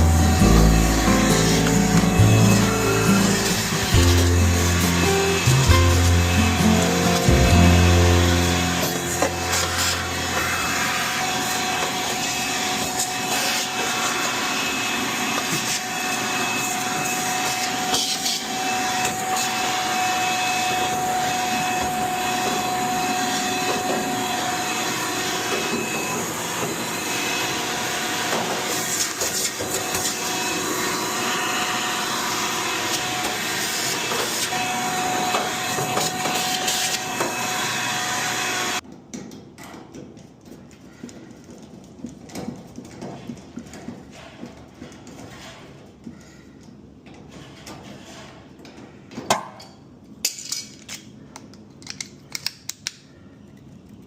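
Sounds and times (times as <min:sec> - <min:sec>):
vacuum motor whining: 0:00.0 - 0:38.8.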